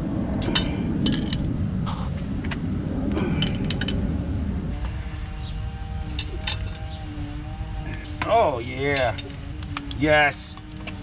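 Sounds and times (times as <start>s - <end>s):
low rumble: 0.0s - 11.0s
metal tools clinking: 0.4s - 1.5s, 3.3s - 4.0s, 6.1s - 7.0s, 8.2s - 10.8s.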